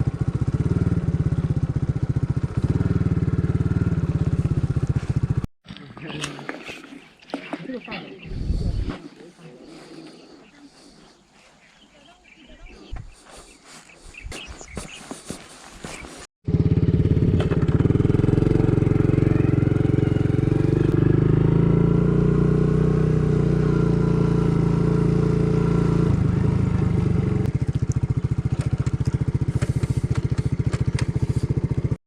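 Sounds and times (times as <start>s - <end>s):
engine running with pulsing beat: 0.0s - 5.5s, 16.5s - 32.0s.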